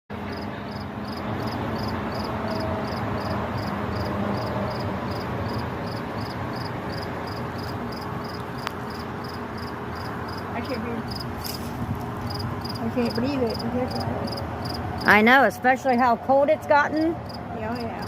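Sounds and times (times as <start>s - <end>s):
cricket chirping: 0.3s - 11.3s, 12.3s - 15.1s.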